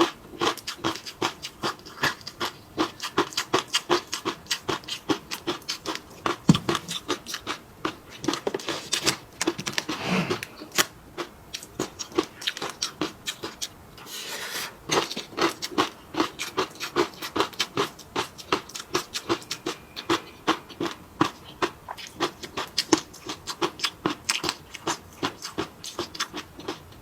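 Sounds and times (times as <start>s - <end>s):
wet chewing and mouth clicks: 0.0s - 13.8s, 14.9s - 27.0s.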